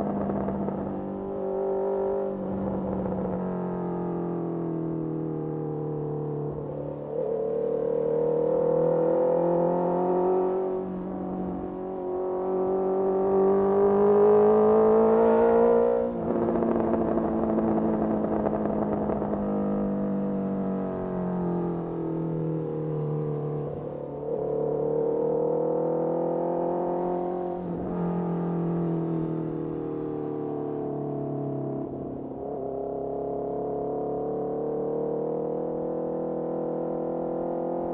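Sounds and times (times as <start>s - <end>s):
motorcycle engine accelerating: 0.0s - 37.9s.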